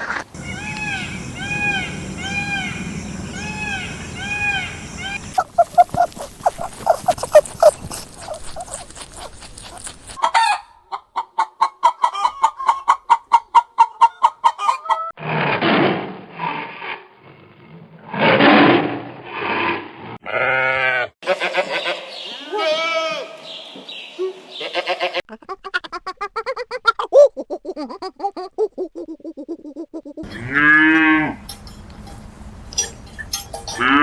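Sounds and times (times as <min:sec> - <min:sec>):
harsh crowing calls: 0:00.0 - 0:05.4, 0:30.2 - 0:34.0
chickens clucking: 0:00.0 - 0:15.1, 0:30.2 - 0:34.0.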